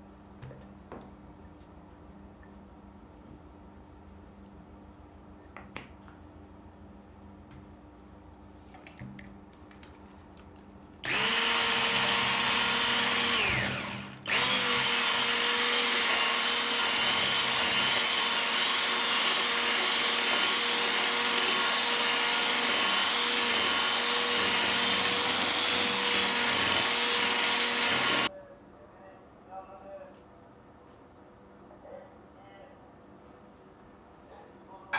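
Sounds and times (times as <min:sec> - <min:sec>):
electric kitchen mixer running: 0:11.0 - 0:28.3.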